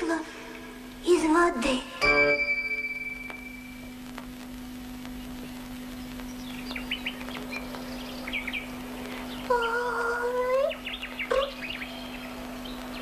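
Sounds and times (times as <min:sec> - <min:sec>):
steady low hum: 0:00.0 - 0:13.0
ringing musical note: 0:02.0 - 0:03.8
birds chirping and twittering: 0:05.0 - 0:13.0.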